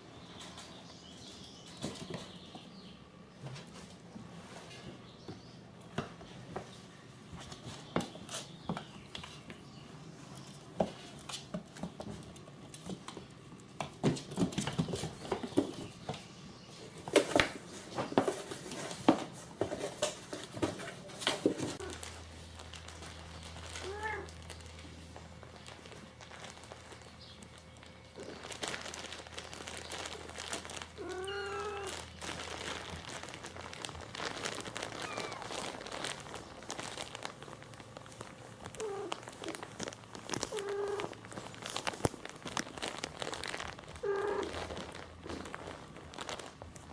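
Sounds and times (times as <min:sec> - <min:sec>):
cat meowing: 0:23.8 - 0:24.3, 0:31.0 - 0:32.1, 0:34.9 - 0:35.6, 0:40.5 - 0:41.2, 0:44.0 - 0:44.6.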